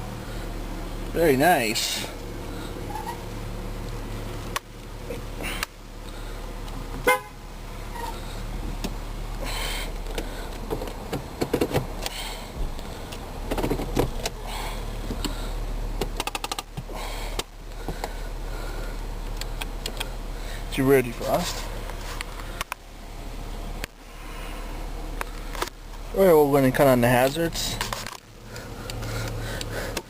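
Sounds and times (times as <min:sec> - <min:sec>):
car engine idling: 0:00.0 - 0:30.0
clicks and handling noises: 0:27.7 - 0:30.0.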